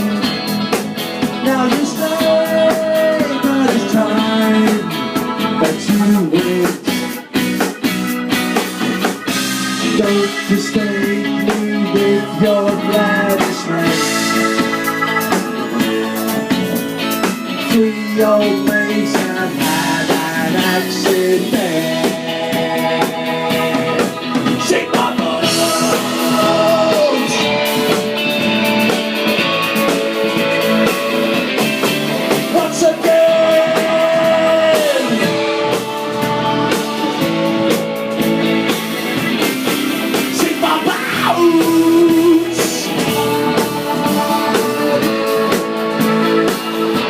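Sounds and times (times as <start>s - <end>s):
rock band playing live: 0.0s - 47.0s
upward pitch slide: 7.7s - 17.8s.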